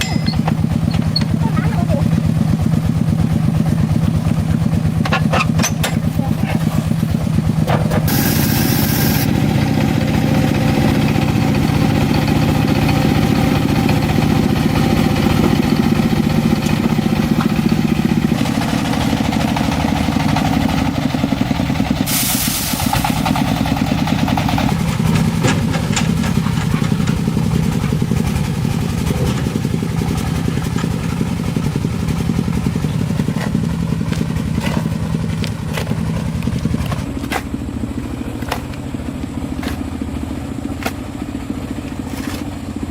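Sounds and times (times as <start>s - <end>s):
engine running: 0.0s - 42.9s.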